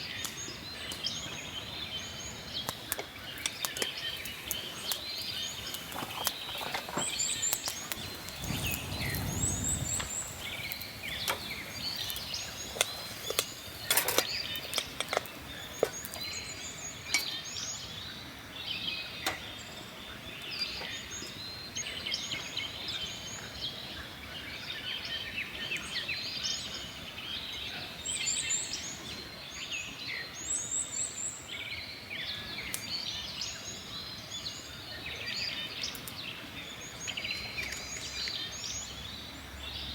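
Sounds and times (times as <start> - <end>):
birds chirping: 0.0 - 29.7, 31.8 - 39.9
soft low rumble: 7.9 - 12.1.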